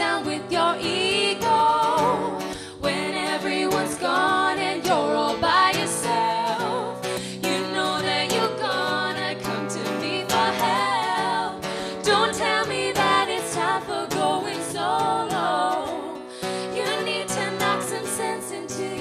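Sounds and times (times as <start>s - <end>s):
women singing wordless harmonies: 0.0s - 19.0s.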